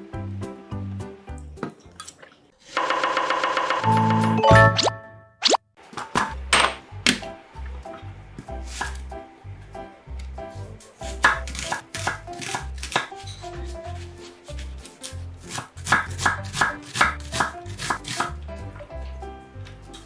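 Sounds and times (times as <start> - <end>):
knife chopping on cutting board: 8.7 - 9.0, 11.0 - 18.4.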